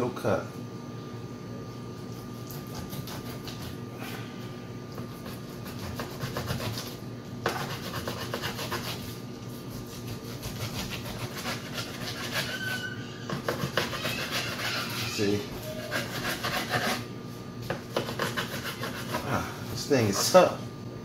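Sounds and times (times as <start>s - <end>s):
serrated knife sawing through meat: 5.2s - 17.1s, 17.9s - 20.5s.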